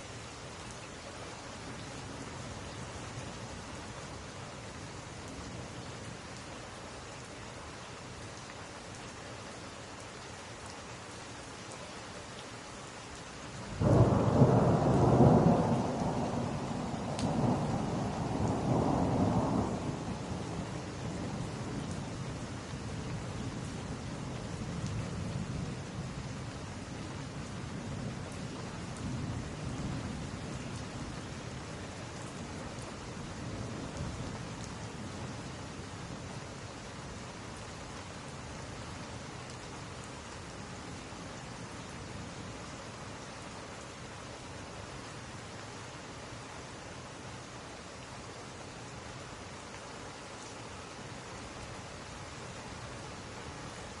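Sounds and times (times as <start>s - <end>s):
rain hiss: 0.0s - 54.0s
thunder rumbling: 13.8s - 21.5s.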